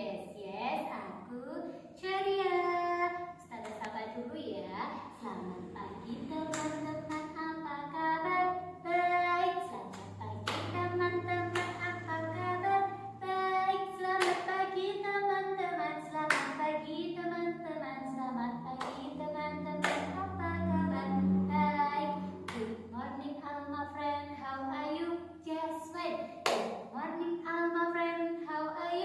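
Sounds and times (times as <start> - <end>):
woman and children singing a chant: 0.0 - 29.0
sharp hand claps: 6.5 - 7.3, 9.9 - 10.8, 11.5 - 11.9, 14.2 - 14.6, 16.3 - 16.6, 18.8 - 19.1, 19.8 - 20.2, 26.4 - 26.8.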